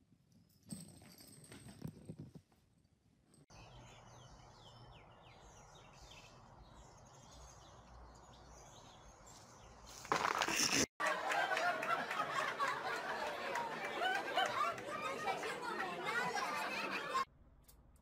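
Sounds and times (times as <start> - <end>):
low outdoor background: 0.0 - 18.0
small birds chirping: 3.5 - 10.0.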